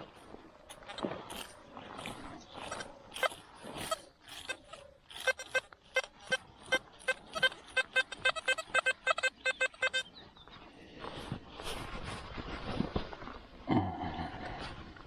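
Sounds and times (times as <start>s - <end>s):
metal detector beeps: 3.2s - 10.1s.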